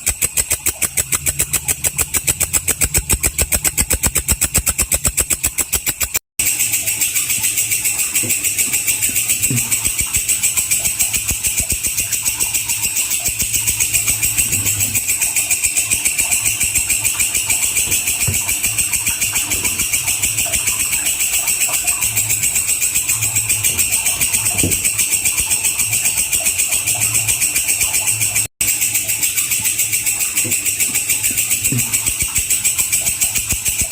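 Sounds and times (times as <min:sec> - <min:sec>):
insect buzzing chirr: 0:00.0 - 0:33.9.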